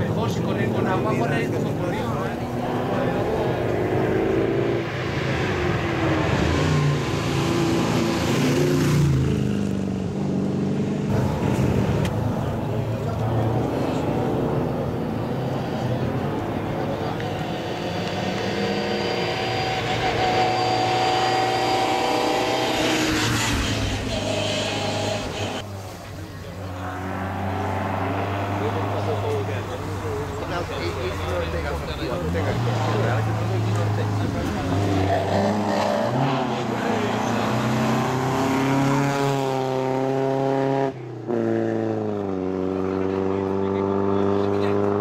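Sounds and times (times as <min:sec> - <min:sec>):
rally car engine passing by: 0:11.0 - 0:45.0.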